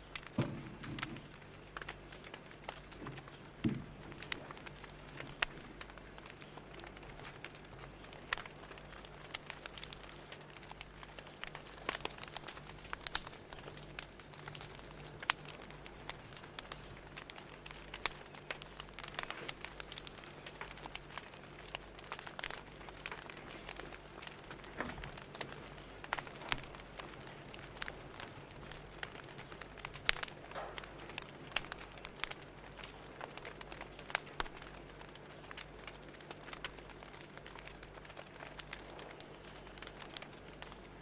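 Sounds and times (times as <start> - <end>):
faint steady hum: 0.0 - 41.0
wood fire crackling: 0.0 - 41.0.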